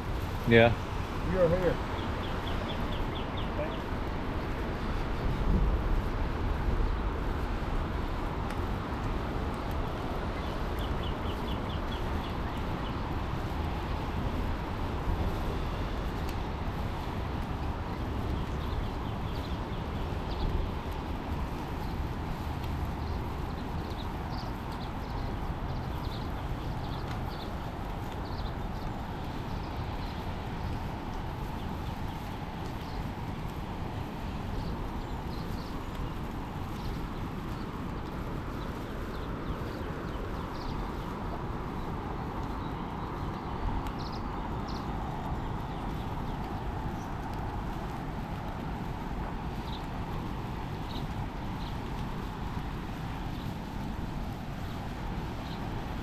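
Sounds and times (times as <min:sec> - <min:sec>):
bird chirping: 0:01.3 - 0:03.8.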